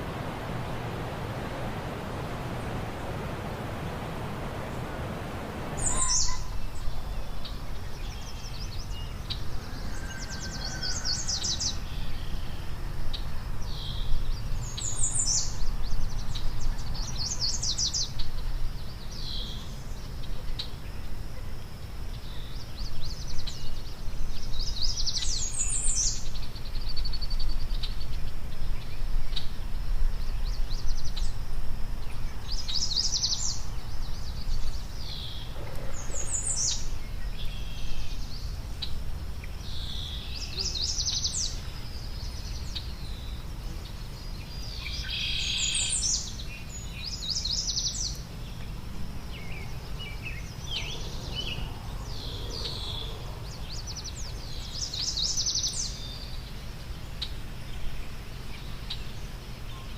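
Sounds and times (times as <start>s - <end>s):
songbird trilling: 5.8s - 12.5s.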